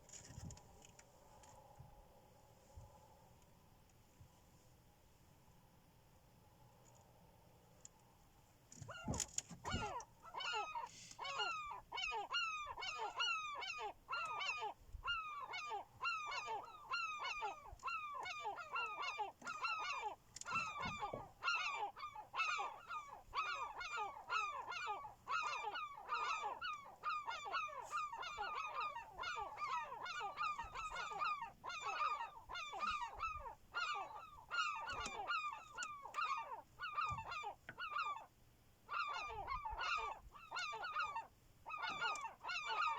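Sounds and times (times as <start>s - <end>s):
flock of birds calling: 8.9s - 38.3s, 38.9s - 42.9s.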